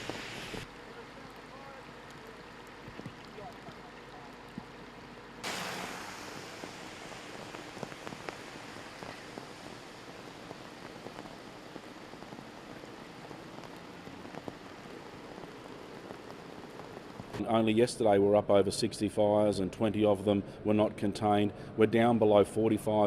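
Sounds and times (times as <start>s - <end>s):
steady rain falling: 0.0s - 17.4s.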